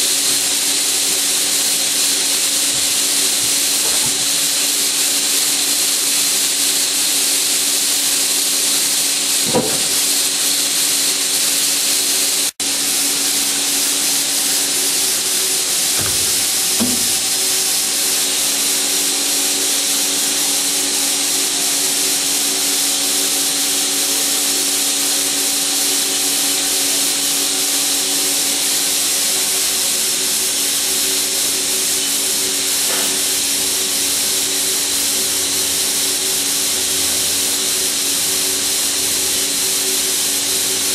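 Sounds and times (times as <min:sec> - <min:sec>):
lathe hiss: 0:00.0 - 0:40.9
machine hum: 0:09.0 - 0:21.7.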